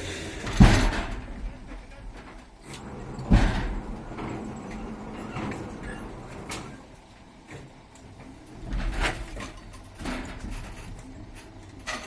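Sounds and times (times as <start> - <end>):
loud clunk: 0.4 - 6.8
crane squeaking and creaking: 1.8 - 7.0, 9.3 - 12.0.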